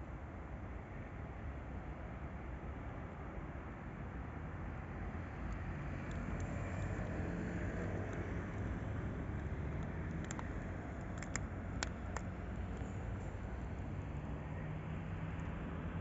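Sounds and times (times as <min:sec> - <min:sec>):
sharp metallic clicks: 0:09.4 - 0:13.3.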